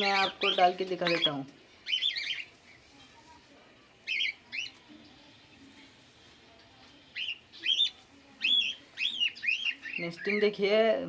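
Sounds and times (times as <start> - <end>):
finches chirping: 0.0 - 2.9, 4.0 - 5.2, 7.1 - 10.7.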